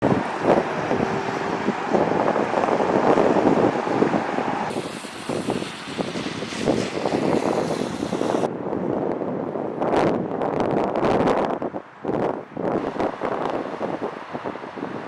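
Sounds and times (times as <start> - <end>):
river water rushing: 0.0 - 5.8
wind buffeting microphone: 0.0 - 15.0.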